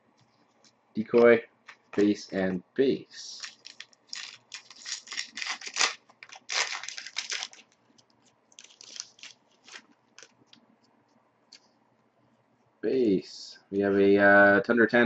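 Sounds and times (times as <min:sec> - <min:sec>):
cards rustling and clicking: 0:00.6 - 0:02.2, 0:03.3 - 0:10.9
wrapper crinkling and tearing: 0:03.3 - 0:10.6.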